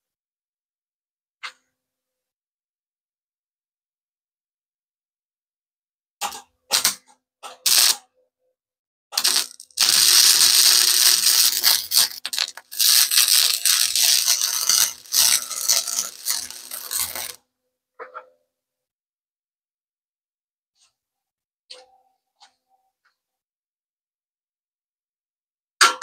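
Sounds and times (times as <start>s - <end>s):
arc welder crackling: 7.7s - 8.0s, 9.2s - 17.4s.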